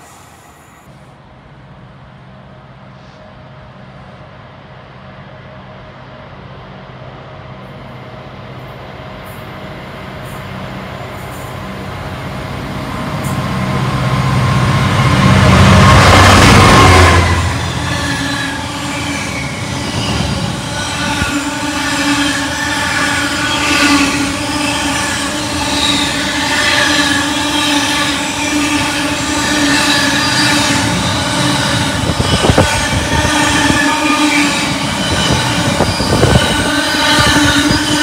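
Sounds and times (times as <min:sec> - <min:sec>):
diesel locomotive engine passing: 0:00.0 - 0:38.0
high wheel squeal: 0:14.7 - 0:38.0.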